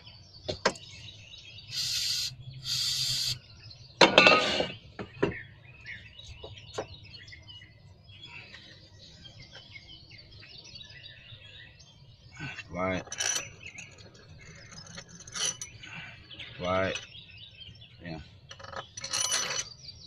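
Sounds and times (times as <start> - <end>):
faint bird chirping: 0.0 - 4.0, 4.6 - 20.0
short hisses: 1.7 - 3.4.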